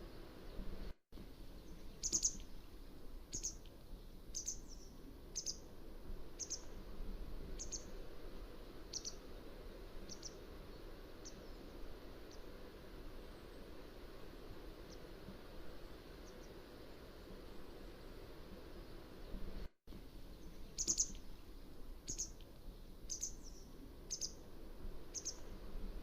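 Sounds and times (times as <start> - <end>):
steady hiss: 0.0 - 26.0
bird calling: 1.7 - 2.4, 3.3 - 3.6, 6.4 - 6.7, 7.6 - 7.9, 8.9 - 9.2, 20.4 - 21.2, 23.1 - 24.4, 25.1 - 25.5.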